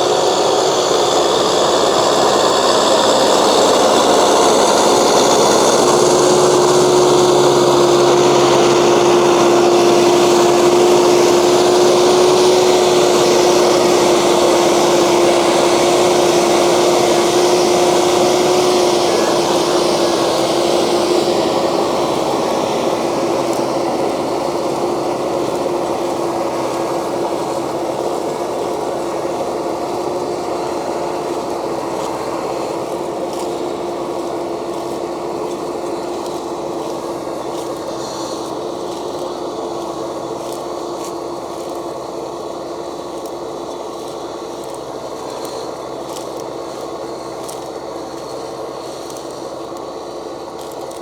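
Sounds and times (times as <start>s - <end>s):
tractor diesel engine running: 0.0s - 51.0s
faint ticks: 43.1s - 51.0s.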